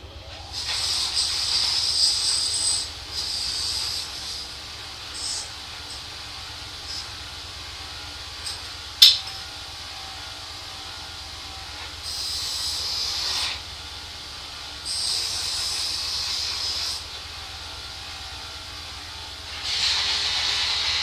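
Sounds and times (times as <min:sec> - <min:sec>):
hissing spray blasts: 0:00.5 - 0:09.8
sharp click: 0:08.5 - 0:09.4.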